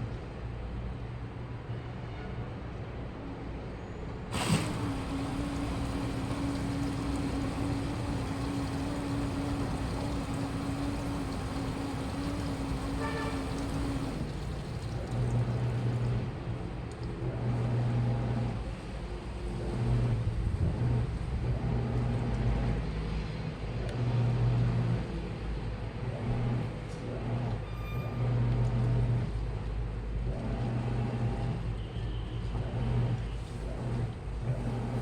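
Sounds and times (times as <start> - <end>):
washing machine motor humming: 4.3 - 16.4, 34.4 - 35.0
mechanical rumble: 4.3 - 16.6.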